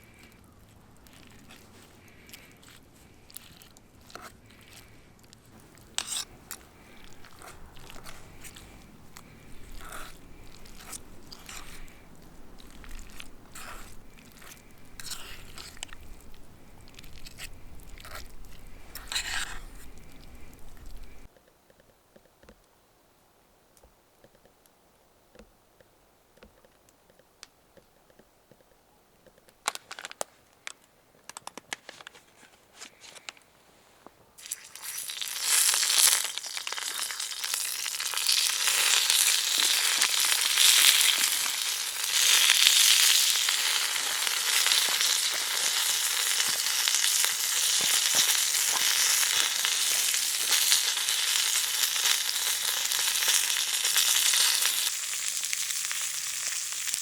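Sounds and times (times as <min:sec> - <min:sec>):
food sizzling in a hot pan: 0:34.4 - 0:57.0.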